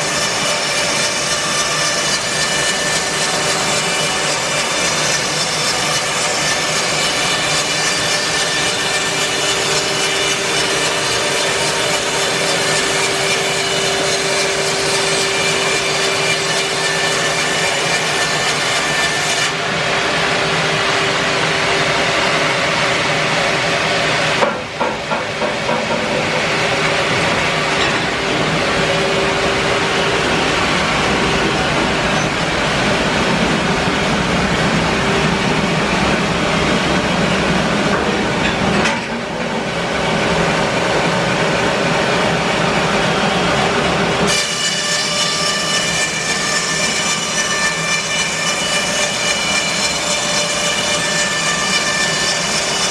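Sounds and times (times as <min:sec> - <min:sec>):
saw blade cutting log: 0:00.0 - 0:20.3, 0:44.2 - 0:52.9
sawmill motor drone: 0:00.0 - 0:52.9.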